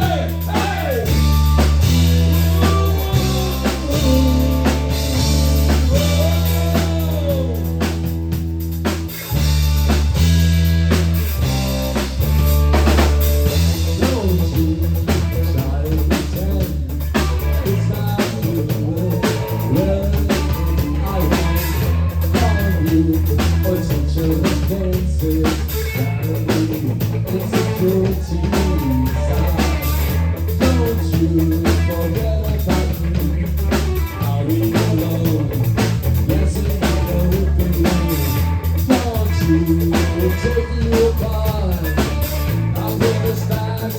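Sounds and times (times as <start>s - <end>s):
rock music: 0.0s - 43.9s.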